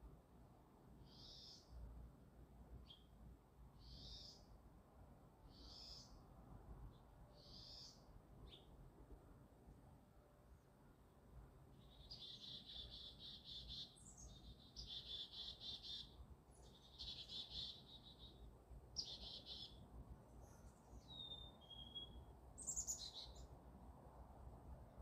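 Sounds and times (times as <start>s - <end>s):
songbirds trilling: 12.0s - 18.4s, 19.0s - 19.8s.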